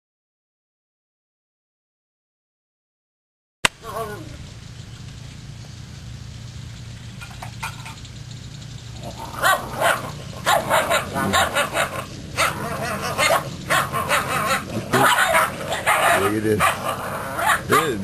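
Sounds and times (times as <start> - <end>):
puppies yapping and yelping: 7.1 - 18.0.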